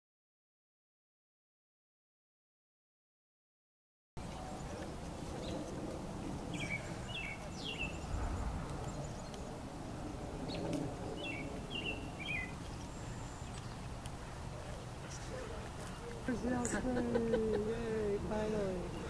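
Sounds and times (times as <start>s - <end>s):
low outdoor rumble: 4.2s - 19.0s
small bird singing: 6.5s - 9.6s, 10.4s - 14.4s.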